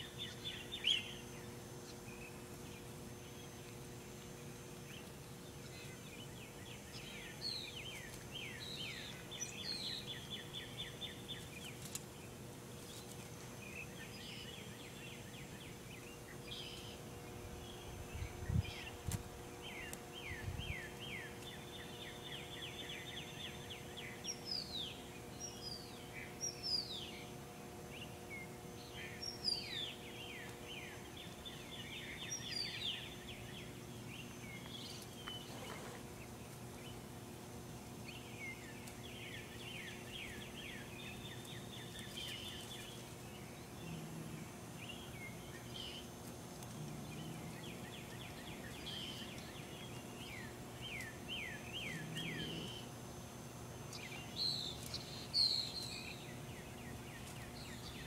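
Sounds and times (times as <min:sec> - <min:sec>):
songbird singing: 0:00.0 - 0:58.0
steady low hum: 0:00.0 - 0:58.0.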